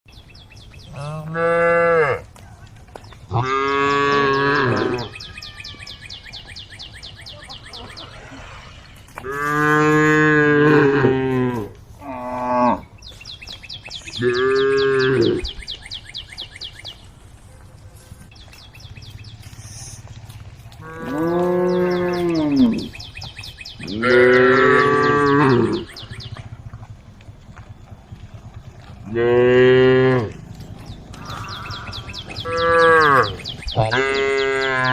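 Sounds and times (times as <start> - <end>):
cows mooing: 0.8 - 2.3, 3.3 - 6.1, 7.8 - 12.9, 14.1 - 15.6, 20.7 - 23.1, 23.8 - 26.4, 28.4 - 34.9.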